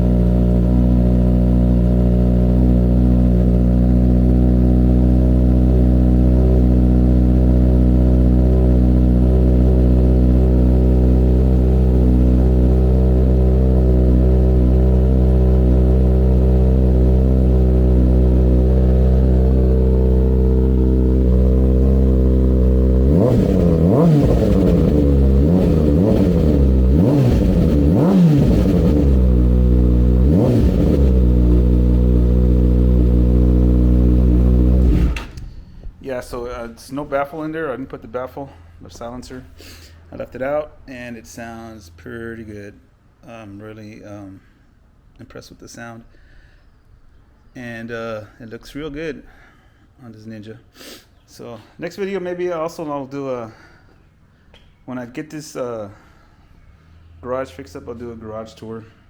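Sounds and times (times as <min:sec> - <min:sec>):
motorcycle engine idling and revving: 0:00.0 - 0:36.0.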